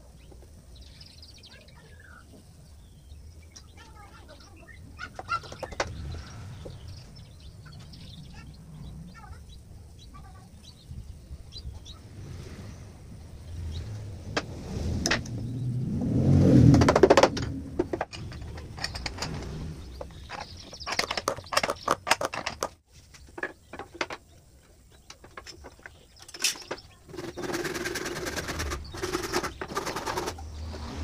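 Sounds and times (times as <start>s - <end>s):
wooden parts knocking and clicking: 5.2s - 6.0s, 16.7s - 30.4s
steady mechanical noise: 25.1s - 31.0s.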